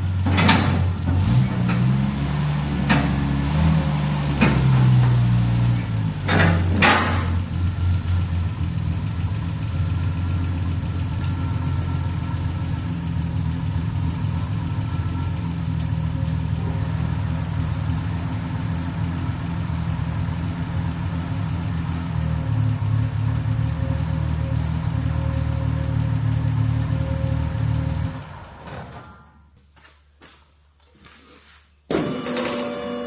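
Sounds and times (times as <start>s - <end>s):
car engine idling: 2.6s - 28.2s.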